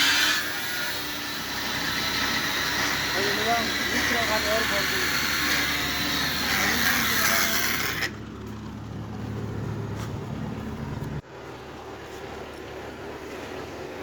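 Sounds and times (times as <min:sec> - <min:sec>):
tractor engine running: 0:08.0 - 0:12.6.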